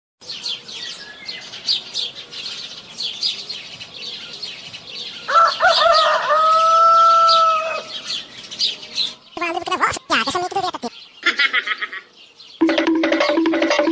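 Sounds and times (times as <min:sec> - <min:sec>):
small birds chirping: 0:00.2 - 0:13.1
rooster crowing: 0:05.3 - 0:08.0.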